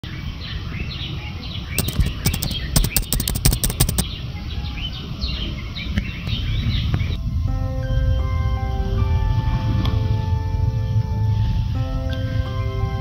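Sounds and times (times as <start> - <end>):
keyboard typing clicks: 1.8 - 4.0.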